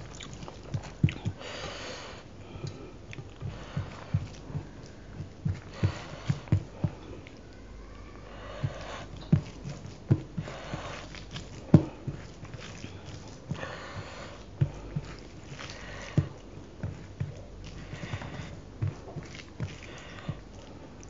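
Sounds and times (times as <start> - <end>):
wet chewing and mouth smacks: 0.0 - 1.4
hand squelching food on a plate: 0.0 - 7.6, 8.2 - 21.0.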